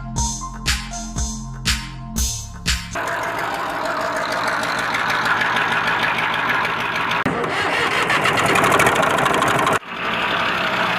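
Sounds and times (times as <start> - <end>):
small tractor engine ticking: 3.0 - 10.9.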